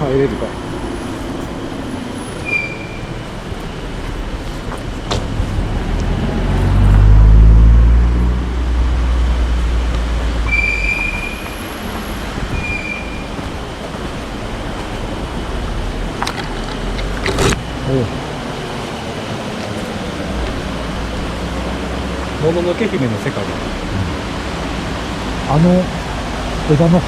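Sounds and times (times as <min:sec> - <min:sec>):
road rumble: 0:00.0 - 0:27.0
vehicle engine: 0:00.0 - 0:27.0.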